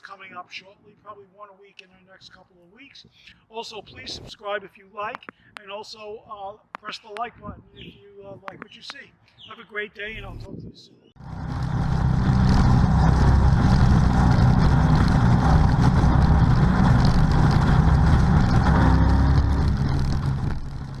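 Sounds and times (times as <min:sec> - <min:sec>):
car engine running: 0:11.2 - 0:21.0.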